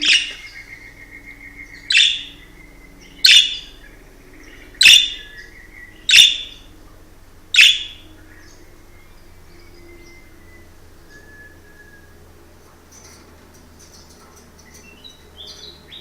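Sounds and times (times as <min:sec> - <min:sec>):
budgerigar chirping: 0:00.0 - 0:06.7, 0:07.5 - 0:08.7.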